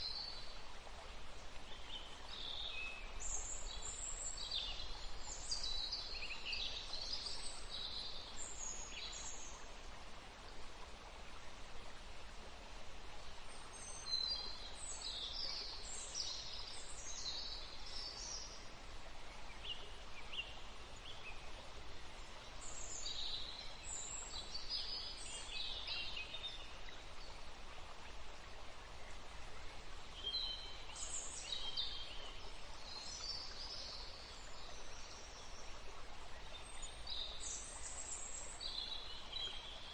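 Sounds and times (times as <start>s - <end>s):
small stream rushing: 0.0s - 39.9s
songbirds singing: 29.0s - 39.9s.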